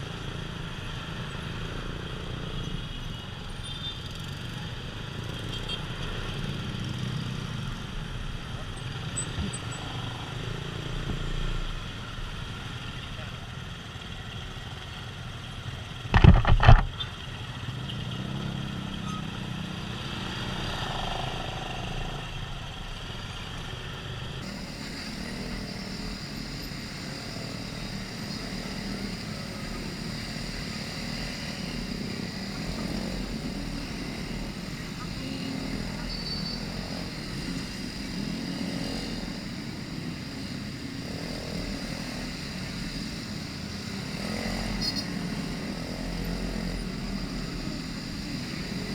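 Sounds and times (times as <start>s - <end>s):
motorbike engine: 15.9s - 48.9s.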